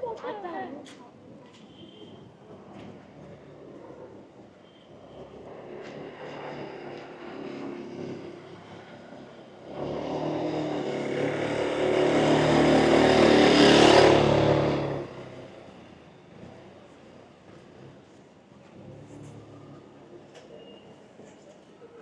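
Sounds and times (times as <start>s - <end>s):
vehicle engine passing by: 5.2s - 15.8s.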